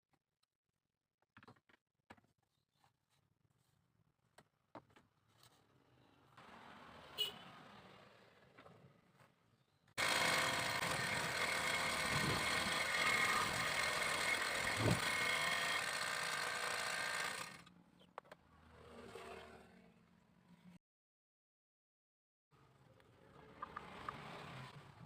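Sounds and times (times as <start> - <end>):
power tool motor whine: 10.0 - 17.7.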